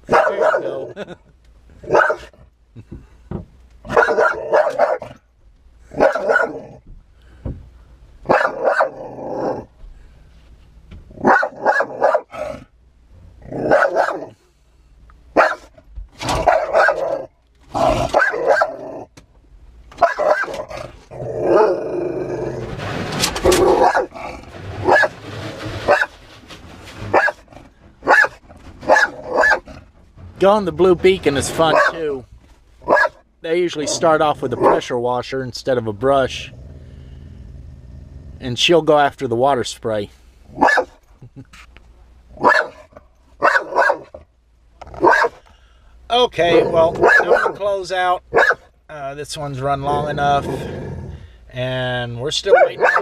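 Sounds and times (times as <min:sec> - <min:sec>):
dog barking and growling: 0:00.0 - 0:01.2, 0:01.8 - 0:02.4, 0:03.8 - 0:05.2, 0:05.9 - 0:06.8, 0:08.2 - 0:09.7, 0:11.1 - 0:12.7, 0:13.4 - 0:14.4, 0:15.3 - 0:19.1, 0:20.0 - 0:22.8, 0:23.4 - 0:26.2, 0:27.0 - 0:29.9, 0:31.2 - 0:32.2, 0:32.8 - 0:34.9, 0:40.5 - 0:41.0, 0:42.3 - 0:44.2, 0:44.8 - 0:45.4, 0:46.4 - 0:48.7, 0:52.4 - 0:53.0
car wash brush: 0:22.9 - 0:27.5.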